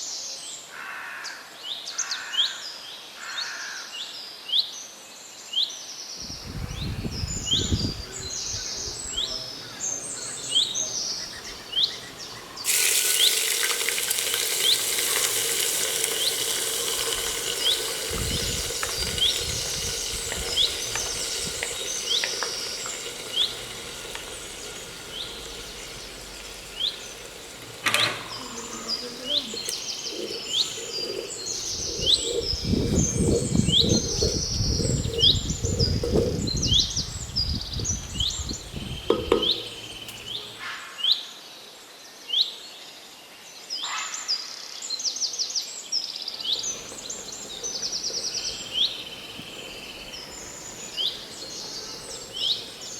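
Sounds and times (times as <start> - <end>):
bird chirping: 6.2 - 40.7, 46.4 - 52.9
food sizzling in hot oil: 6.3 - 40.6, 46.4 - 52.9.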